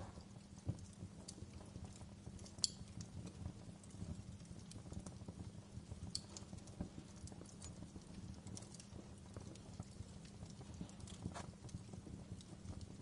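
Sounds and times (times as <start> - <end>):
fire popping: 0.0 - 13.0
wood fire crackling: 0.0 - 13.0.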